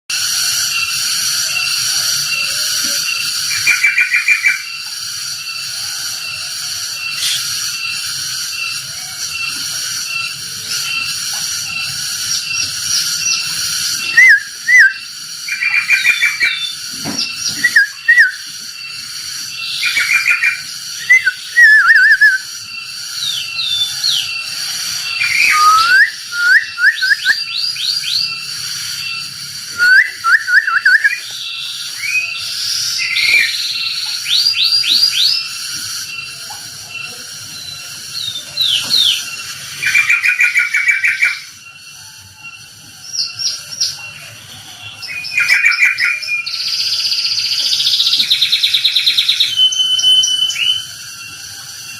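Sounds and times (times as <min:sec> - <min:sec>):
lovebird chirping shrilly: 0:00.1 - 0:36.3
cicada drone: 0:00.1 - 0:51.9.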